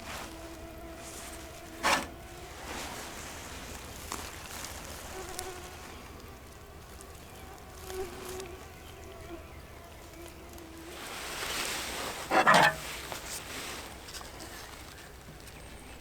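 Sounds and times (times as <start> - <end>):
flying insect buzzing: 0.0 - 11.7.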